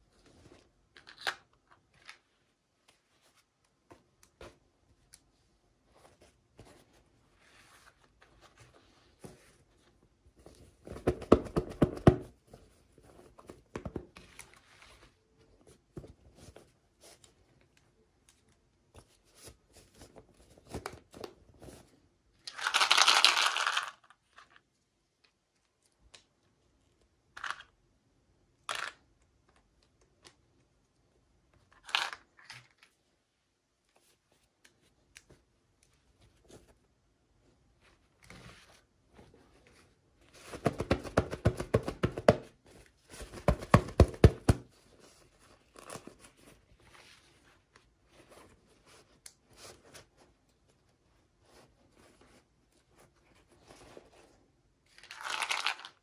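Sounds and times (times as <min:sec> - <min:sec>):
packaging clicks and rustles: 0:54.9 - 0:56.0.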